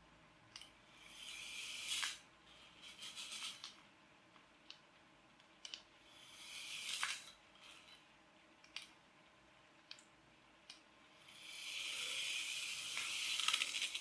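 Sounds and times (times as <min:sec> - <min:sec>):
toy car electric motor whirring: 0:01.0 - 0:02.2, 0:02.8 - 0:03.7, 0:06.1 - 0:07.9, 0:11.2 - 0:14.0.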